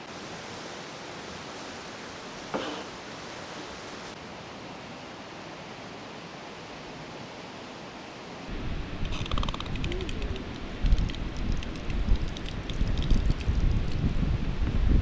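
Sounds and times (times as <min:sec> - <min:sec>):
steady rushing outdoor noise: 0:00.0 - 0:15.0.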